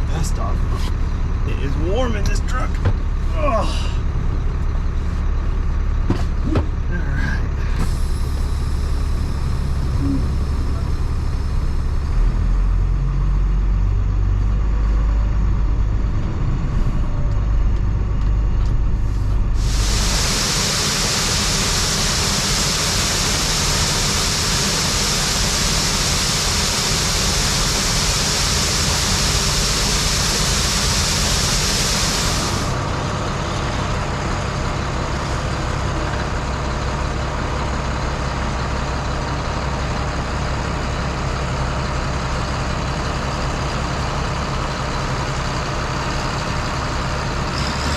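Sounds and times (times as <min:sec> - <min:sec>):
truck engine rumble: 0:00.0 - 0:47.9
loud steady hiss: 0:19.6 - 0:32.8.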